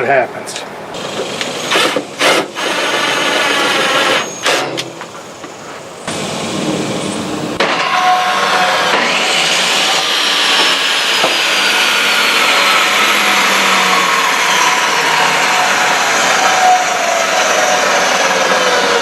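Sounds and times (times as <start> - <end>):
table saw motor running: 7.8 - 19.0.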